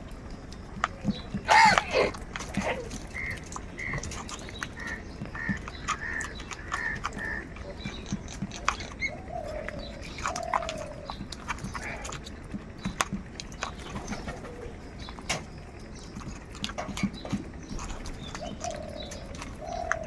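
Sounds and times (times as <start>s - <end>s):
crows cawing: 1.4s - 4.1s, 4.8s - 7.6s.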